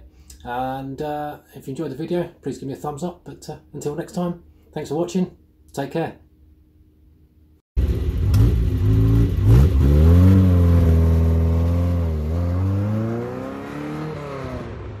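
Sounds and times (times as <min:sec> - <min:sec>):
car engine accelerating away: 0:07.8 - 0:15.0.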